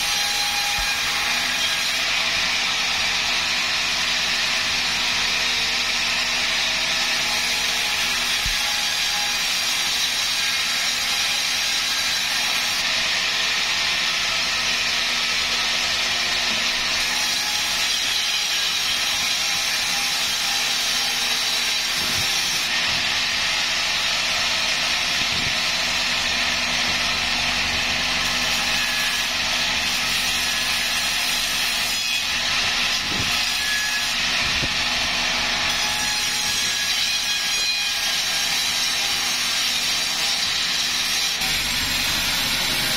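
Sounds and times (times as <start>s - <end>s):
sawmill saw hissing: 0.0s - 42.9s.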